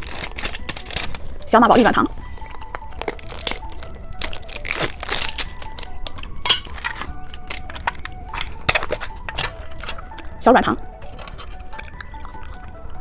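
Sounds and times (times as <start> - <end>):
plastic wrapper crinkling: 0.0 - 12.7.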